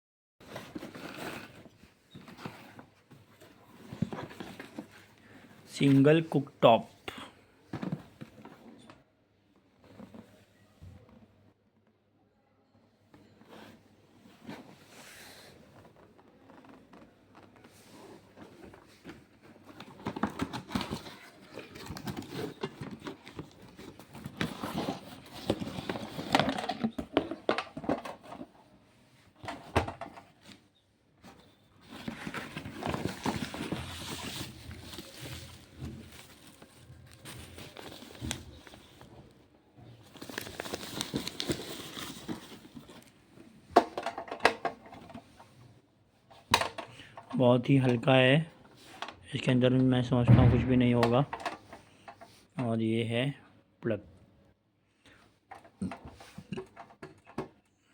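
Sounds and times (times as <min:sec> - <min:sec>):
plastic or paper crinkling: 0:18.0 - 0:28.4, 0:31.8 - 0:39.1, 0:40.0 - 0:43.2.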